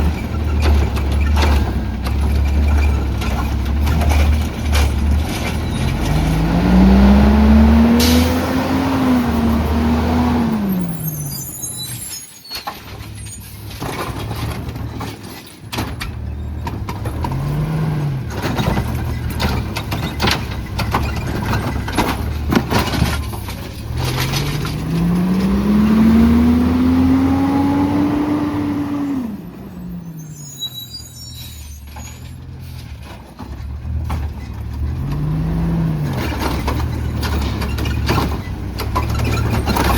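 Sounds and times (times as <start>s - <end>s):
truck engine revving: 0.0s - 12.0s, 16.4s - 32.9s, 33.6s - 39.9s
air brakes hissing: 7.9s - 8.5s
metal clanks: 36.1s - 39.9s.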